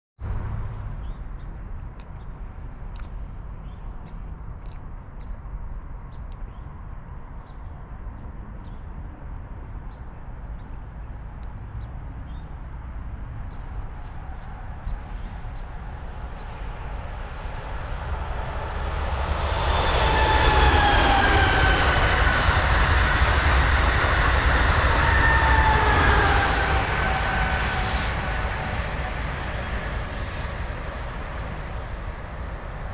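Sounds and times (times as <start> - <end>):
train wheels rushing on rail: 17.2 - 32.9
high whine sliding down: 17.5 - 29.4.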